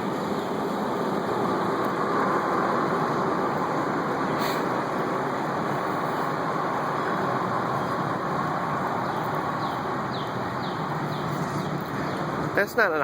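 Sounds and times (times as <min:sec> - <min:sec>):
rushing noise: 0:00.0 - 0:12.7
bird chirping: 0:09.0 - 0:12.4.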